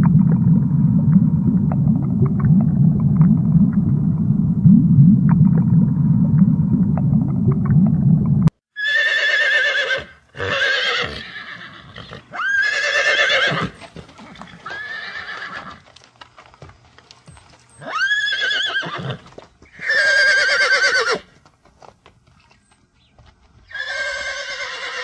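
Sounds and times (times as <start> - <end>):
horse whinnying: 8.8 - 15.8, 17.8 - 21.3, 23.7 - 25.0.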